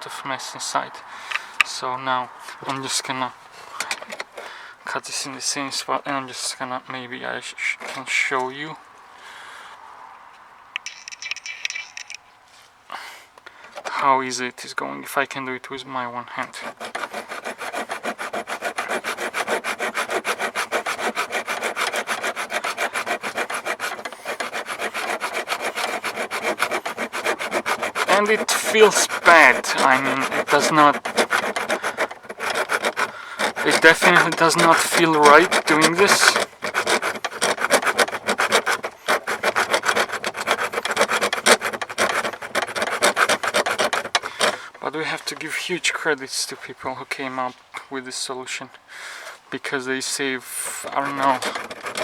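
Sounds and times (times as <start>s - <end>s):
hand saw cutting plastic: 7.6s - 8.1s, 16.4s - 45.5s, 50.5s - 52.0s.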